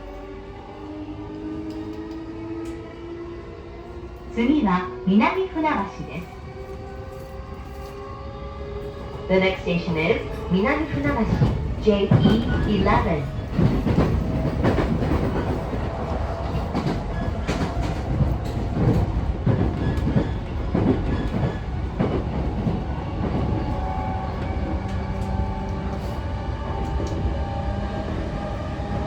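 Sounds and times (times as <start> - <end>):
train running rumble: 3.8 - 29.0.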